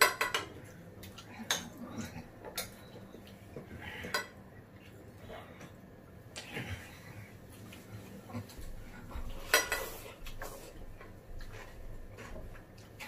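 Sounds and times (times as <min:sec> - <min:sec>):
utensils clinking on ceramic bowls: 0:04.0 - 0:04.4.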